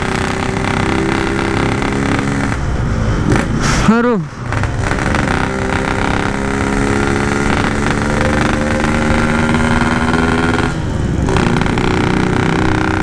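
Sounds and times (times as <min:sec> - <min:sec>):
two-stroke motorcycle engine: 0:00.0 - 0:02.7, 0:04.5 - 0:13.0
road and wind noise: 0:00.0 - 0:13.0.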